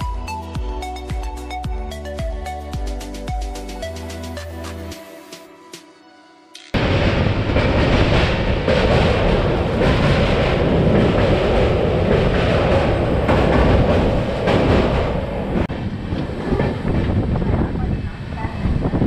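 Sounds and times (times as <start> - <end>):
train wheels rumbling and clattering: 6.8 - 19.0.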